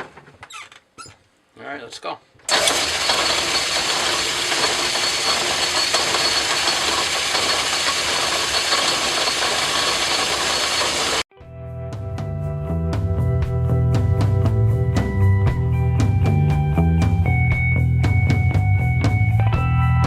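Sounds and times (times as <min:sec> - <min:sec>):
metal lathe running: 0:02.5 - 0:11.2
background music with drums: 0:11.6 - 0:20.0.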